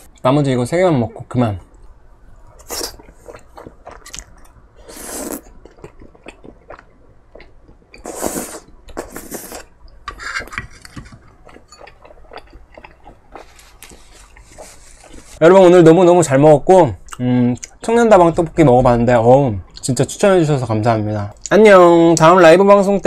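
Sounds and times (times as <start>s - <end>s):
person chewing rice cakes: 2.6s - 10.0s, 11.0s - 15.4s.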